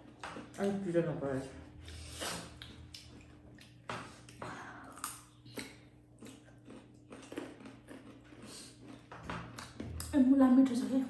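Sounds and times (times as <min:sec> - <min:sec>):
wet chewing and mouth smacks: 0:02.2 - 0:10.1.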